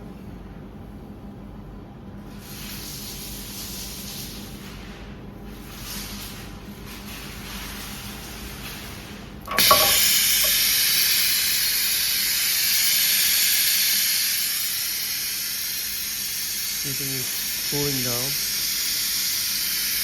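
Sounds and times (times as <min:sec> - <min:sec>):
loud hiss of air: 0:02.4 - 0:04.5, 0:09.5 - 0:20.0.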